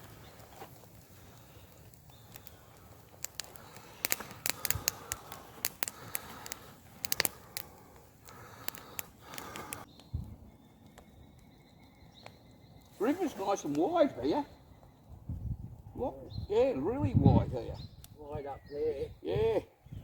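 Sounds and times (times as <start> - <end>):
campfire crackling: 0.0 - 15.9.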